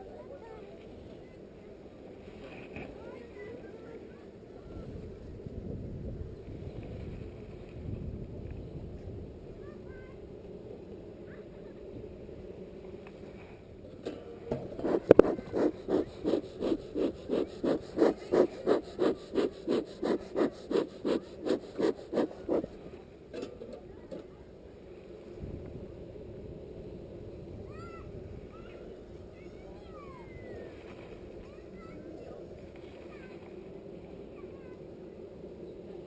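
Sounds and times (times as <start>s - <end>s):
low steady hum: 0.0s - 36.0s
smoker bellows puffing: 14.8s - 22.8s.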